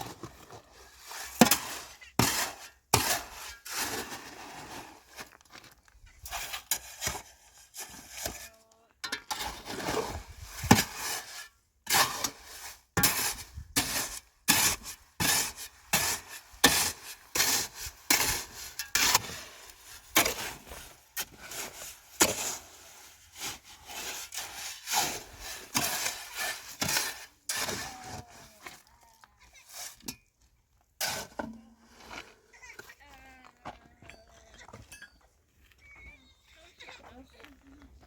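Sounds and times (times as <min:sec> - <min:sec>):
scraping strokes: 0:00.0 - 0:05.4, 0:06.1 - 0:30.3, 0:31.0 - 0:32.5.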